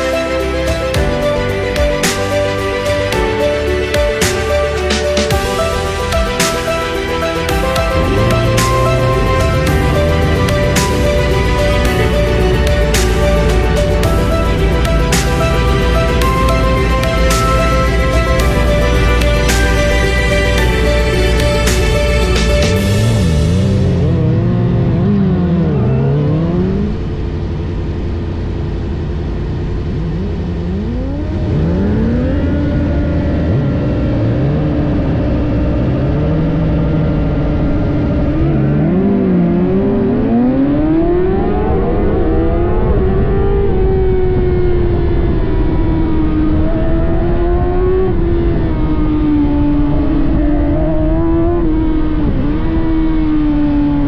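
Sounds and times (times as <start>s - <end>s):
sport bike engines revving: 7.8s - 42.3s.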